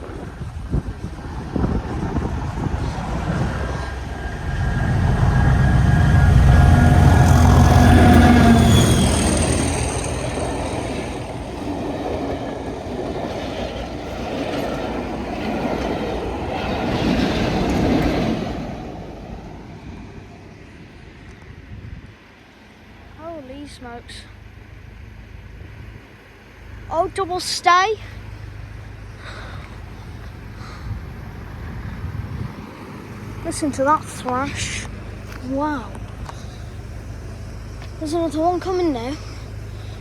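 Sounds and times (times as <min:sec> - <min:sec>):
diesel locomotive engine rumble: 0:00.0 - 0:40.0
train carriages clattering: 0:01.3 - 0:19.6.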